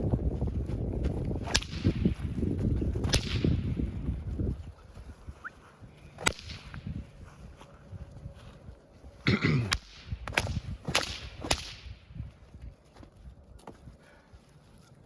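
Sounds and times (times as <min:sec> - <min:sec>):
whip cracking: 0:01.4 - 0:04.0, 0:06.2 - 0:07.0, 0:09.6 - 0:12.2.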